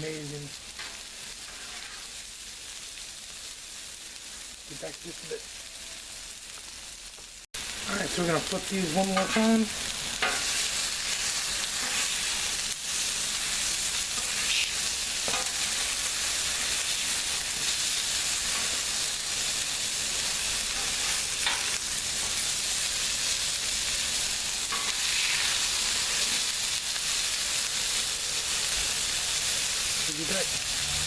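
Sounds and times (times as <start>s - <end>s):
food sizzling on a griddle: 0.0s - 31.0s
metal spatula scraping griddle: 0.8s - 2.2s, 8.9s - 22.5s, 24.5s - 26.5s.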